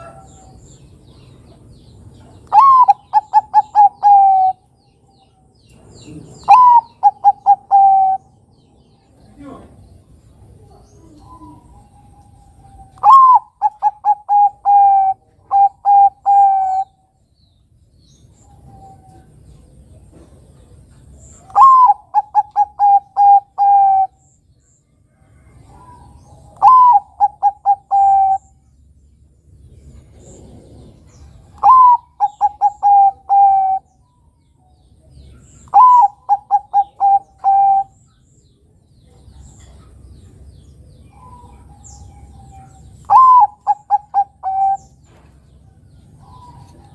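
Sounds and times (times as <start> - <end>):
dove cooing: 2.2 - 4.7, 5.9 - 8.4, 10.5 - 17.0, 21.4 - 24.3, 25.5 - 28.6, 30.0 - 34.0, 35.3 - 38.0, 41.1 - 45.2.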